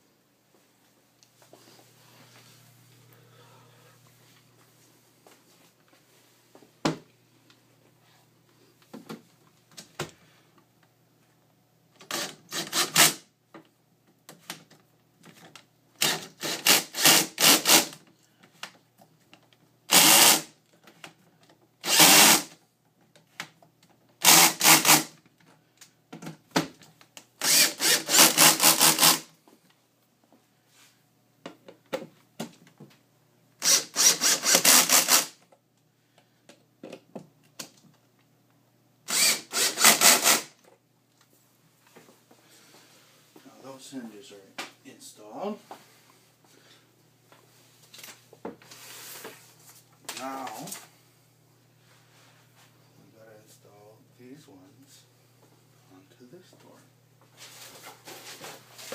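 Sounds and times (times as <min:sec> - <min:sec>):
power drill driving screws: 0:12.0 - 0:13.2, 0:16.0 - 0:18.0, 0:19.9 - 0:20.5, 0:21.8 - 0:22.6, 0:24.2 - 0:25.1, 0:27.4 - 0:29.3, 0:33.6 - 0:35.4, 0:39.1 - 0:40.6.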